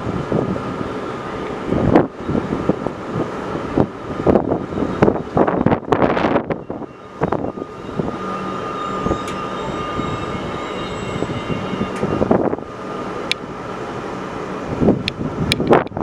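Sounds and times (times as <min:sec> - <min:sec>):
train rumbling: 0:00.0 - 0:16.0
wind buffeting microphone: 0:00.0 - 0:16.0
faint high whine: 0:04.6 - 0:14.6.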